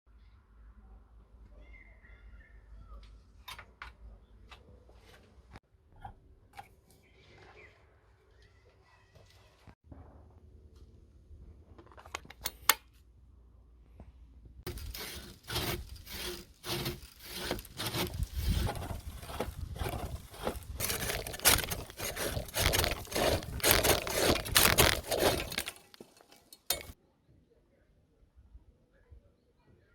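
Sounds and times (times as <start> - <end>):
saw cutting tree branch: 14.7 - 27.0.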